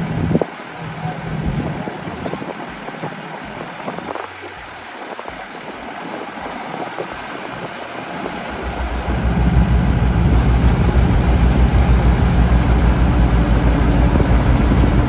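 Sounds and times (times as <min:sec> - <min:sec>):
combine harvester working: 0:08.0 - 0:15.0.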